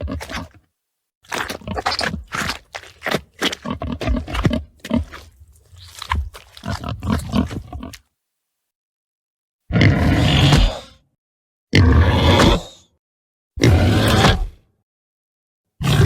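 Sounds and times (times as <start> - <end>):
rough animal calls: 1.3 - 8.0.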